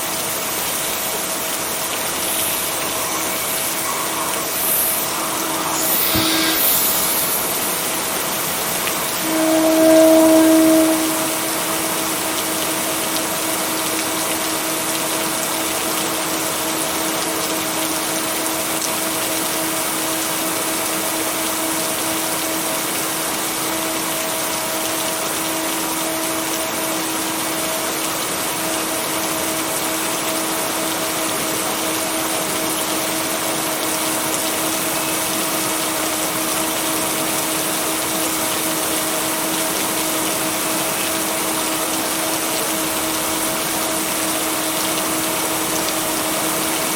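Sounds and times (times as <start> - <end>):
steady rain: 0.0 - 46.9
steady humming tones: 1.1 - 12.6.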